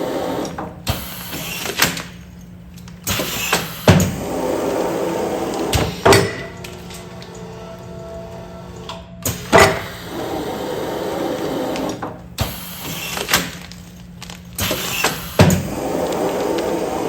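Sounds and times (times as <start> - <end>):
machine running: 3.0 - 17.0
sealing machine clacks: 11.7 - 17.0.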